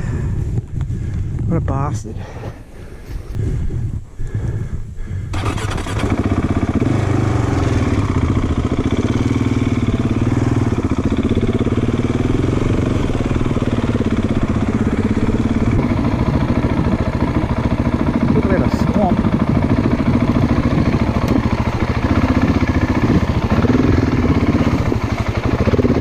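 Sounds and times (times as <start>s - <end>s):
motorcycle engine running: 5.3s - 26.0s.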